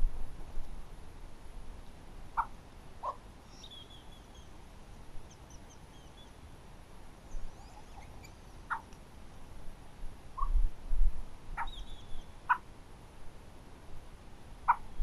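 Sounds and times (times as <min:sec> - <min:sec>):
short lower bird calls: 0:02.4 - 0:04.6, 0:07.3 - 0:08.9, 0:10.4 - 0:10.6, 0:11.6 - 0:12.6
high bird chirps and twitters: 0:03.5 - 0:04.5, 0:11.6 - 0:12.3.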